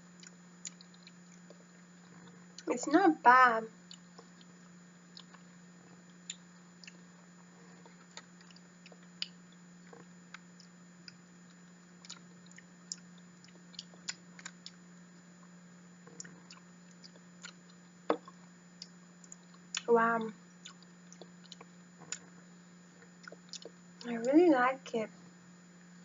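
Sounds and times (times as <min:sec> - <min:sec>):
steady low hum: 0:00.0 - 0:26.0
wet chewing clicks and smacks: 0:00.2 - 0:02.7, 0:03.9 - 0:07.0, 0:07.8 - 0:14.8, 0:16.1 - 0:19.9, 0:20.6 - 0:22.4, 0:23.0 - 0:23.8.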